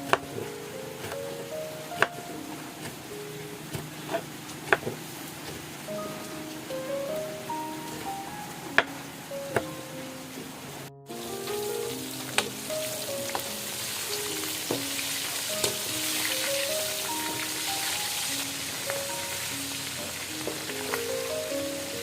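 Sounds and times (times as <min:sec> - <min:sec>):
soft melody of stepped notes: 0:00.0 - 0:22.0
food sizzling in a pan: 0:11.1 - 0:22.0.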